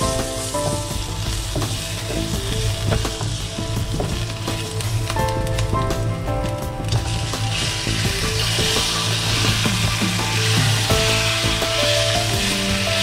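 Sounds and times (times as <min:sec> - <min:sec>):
chicken sizzling in hot oil: 0:00.0 - 0:13.0
spatula stirring in wok: 0:06.5 - 0:13.0.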